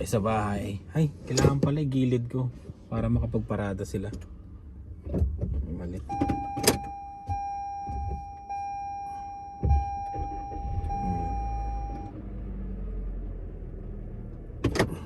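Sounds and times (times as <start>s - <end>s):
low rumble of car: 0.0s - 15.0s
car warning chime: 6.0s - 12.2s
low thump: 9.6s - 10.3s.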